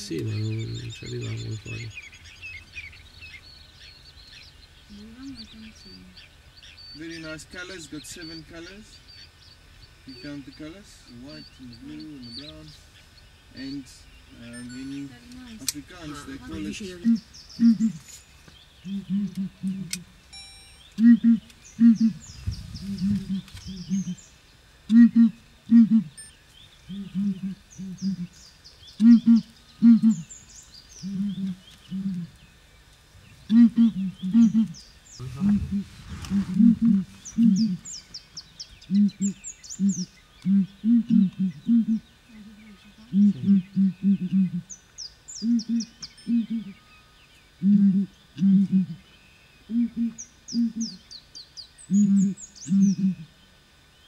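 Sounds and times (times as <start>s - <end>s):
bird high chirps: 0.0s - 24.4s
small birds twittering: 0.0s - 54.0s
bird hooting: 16.0s - 18.1s, 18.8s - 20.1s, 20.8s - 24.3s, 24.9s - 28.4s, 29.0s - 32.4s, 33.4s - 38.0s, 38.8s - 44.8s, 45.4s - 46.9s, 47.6s - 51.0s, 51.8s - 53.4s.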